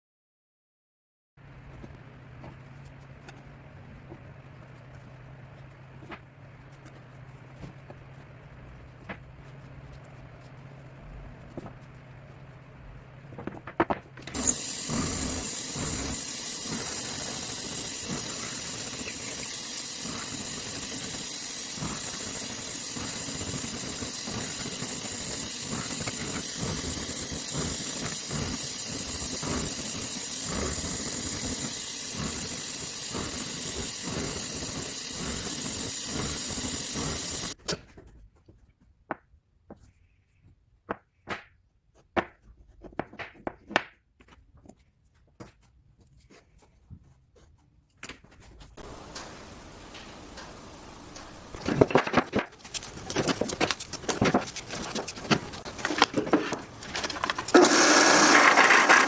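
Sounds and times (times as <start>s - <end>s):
woodworking tool hissing: 14.4s - 37.6s, 48.8s - 51.6s, 55.6s - 59.0s.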